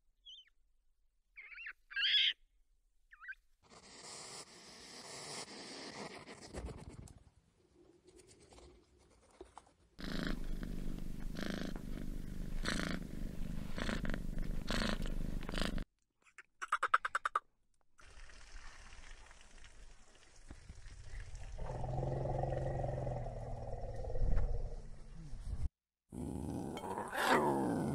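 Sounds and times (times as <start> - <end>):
cat purring: 10.0 - 15.8.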